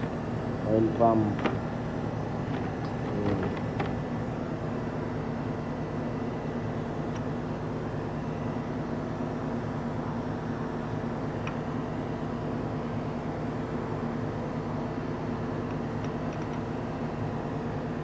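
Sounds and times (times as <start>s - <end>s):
machine hum: 0.0s - 4.6s.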